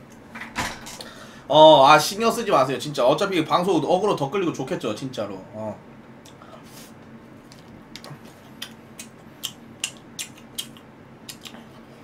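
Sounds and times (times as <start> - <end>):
man chewing food: 7.4 - 12.0.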